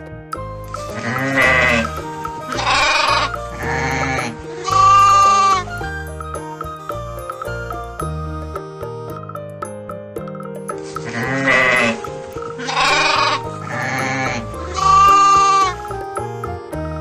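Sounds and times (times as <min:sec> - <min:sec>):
light background music: 0:00.0 - 0:17.0
sheep bleating: 0:00.9 - 0:05.6, 0:11.1 - 0:12.0, 0:12.6 - 0:15.8.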